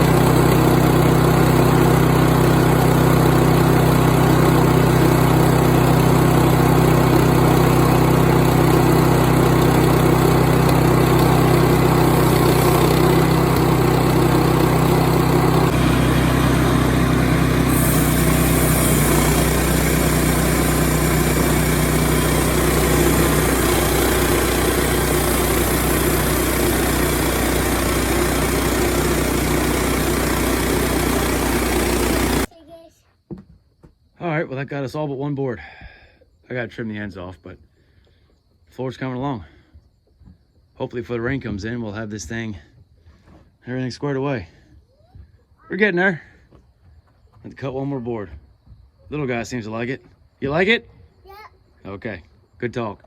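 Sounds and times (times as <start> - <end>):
sawmill engine sawing a log: 0.0 - 32.5.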